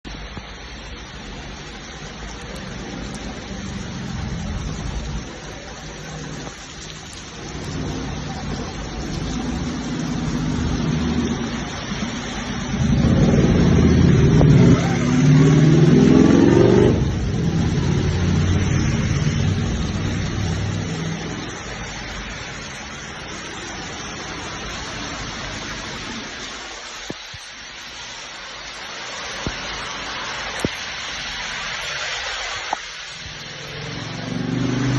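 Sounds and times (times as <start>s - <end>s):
cars passing on wet road: 0.0s - 34.9s
vehicle accelerating close by: 12.6s - 21.5s, 33.6s - 34.9s.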